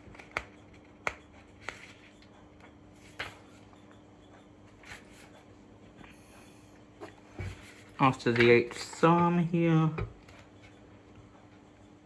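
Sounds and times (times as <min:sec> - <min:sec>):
book pages rustling: 0:00.0 - 0:03.7, 0:07.0 - 0:09.1
faint steady hum: 0:00.0 - 0:12.0.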